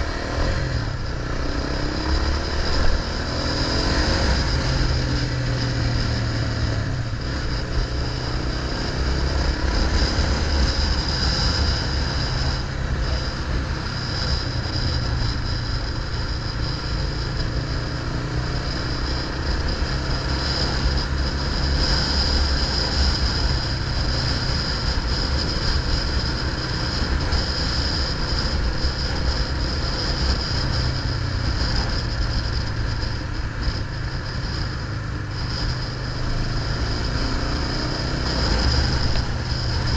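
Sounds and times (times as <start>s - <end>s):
low rumble: 0.0s - 18.2s.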